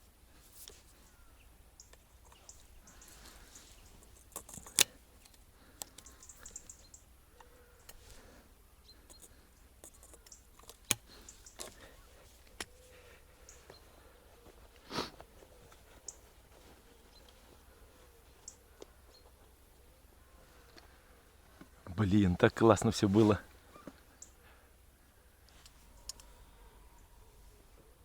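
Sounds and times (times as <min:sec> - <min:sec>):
small clicks and rustles: 0:00.3 - 0:19.5, 0:25.4 - 0:26.4
sharp clicks: 0:04.1 - 0:06.8.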